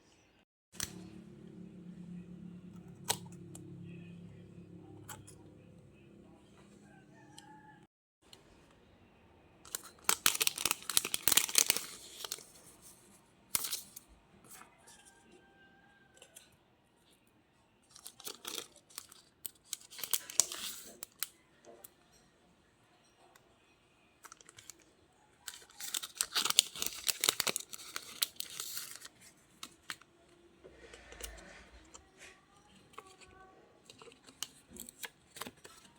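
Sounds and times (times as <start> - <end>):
paper rustling: 25.5 - 30.0.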